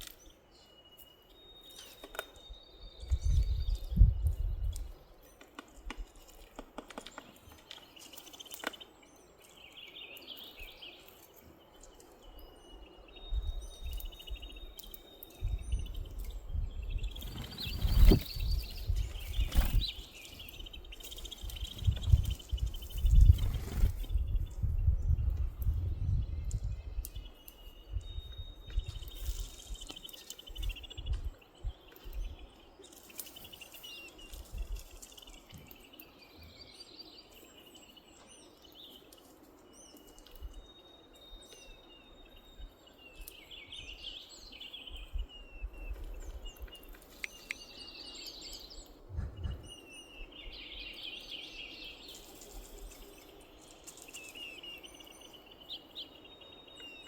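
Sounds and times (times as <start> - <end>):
birds chirping and trilling: 0.0 - 57.0
low rumbling bursts: 49.1 - 49.9.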